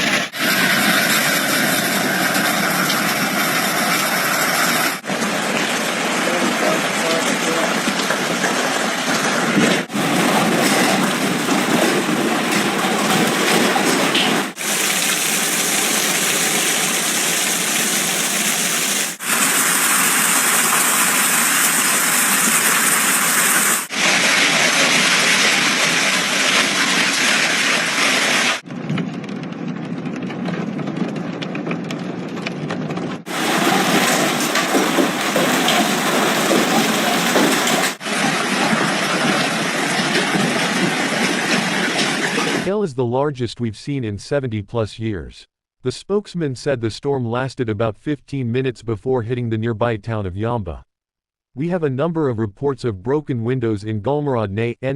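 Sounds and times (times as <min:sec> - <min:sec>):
heavy rain: 0:00.0 - 0:28.7, 0:33.3 - 0:42.7
hail pelting down: 0:00.5 - 0:32.4, 0:33.3 - 0:42.6.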